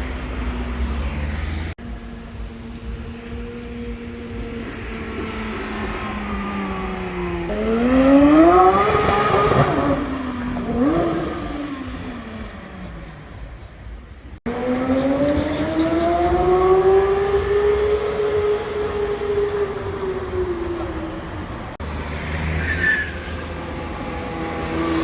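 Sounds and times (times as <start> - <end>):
sports car engine accelerating: 0.0 - 25.0.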